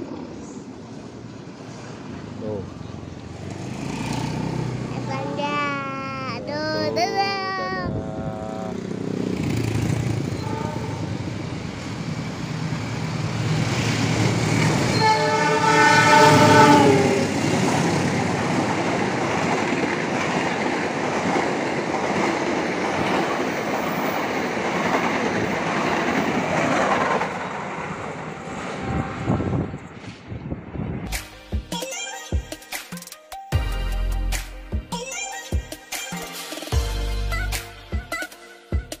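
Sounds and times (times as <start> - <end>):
train coaches rushing by: 0.0 - 31.1
train horn: 10.4 - 11.4, 14.9 - 17.4.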